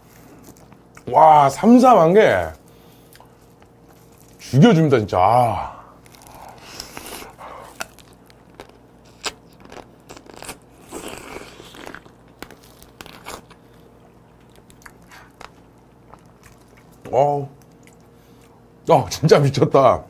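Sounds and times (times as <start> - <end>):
biting and chewing: 0.0 - 1.1, 2.6 - 4.4, 6.0 - 18.6
soft sucking: 5.8 - 14.0
crab shell crunching: 5.8 - 18.6.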